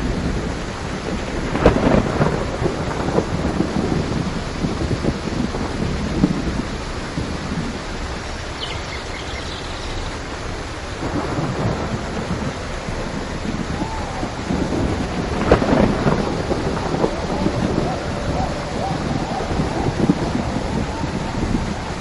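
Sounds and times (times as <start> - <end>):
rolling thunder: 0.0 - 22.0
steady rainfall: 0.0 - 22.0
sharp thunder crack: 11.0 - 21.6.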